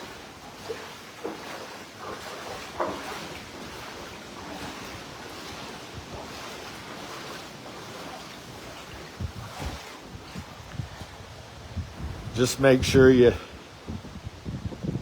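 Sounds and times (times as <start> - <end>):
wind and floodwater rushing: 0.0 - 15.0
wind gusts buffeting microphone: 3.0 - 15.0.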